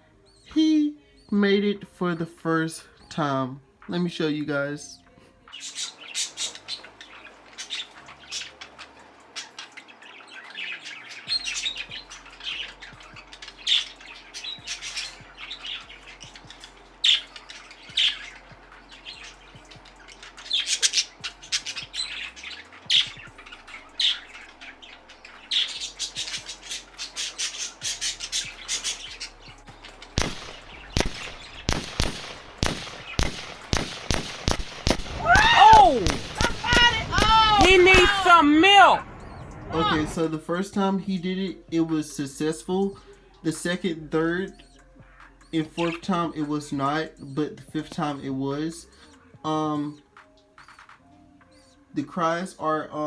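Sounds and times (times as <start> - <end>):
budgerigars chirping and squawking: 1.2 - 50.0
budgie chicks begging cries: 2.7 - 53.0
loud sharp clicks: 30.2 - 38.1.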